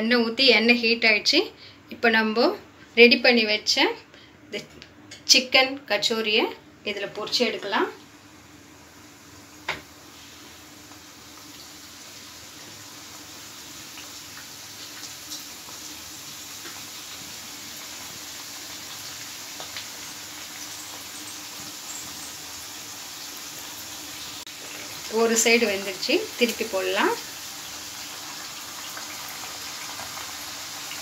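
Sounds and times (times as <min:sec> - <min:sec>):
food sizzling in hot oil: 0:07.4 - 0:31.0.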